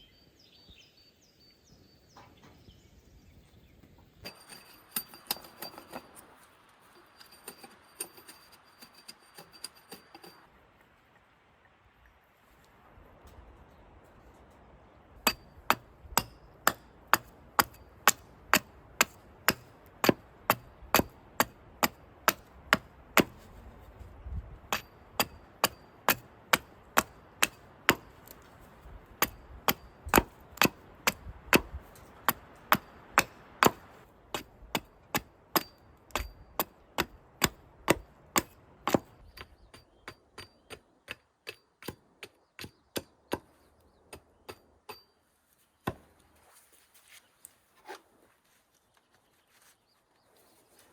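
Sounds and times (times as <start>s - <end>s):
hand tool striking with ring: 4.2s - 6.4s, 7.0s - 10.5s.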